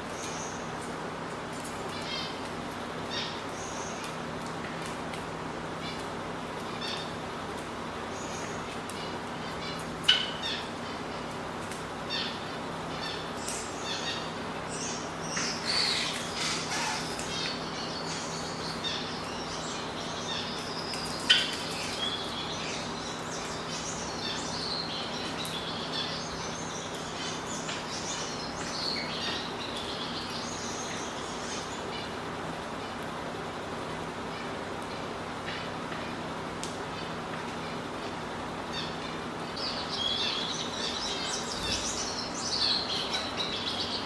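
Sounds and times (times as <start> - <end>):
cage birds chirping: 0.0 - 44.0.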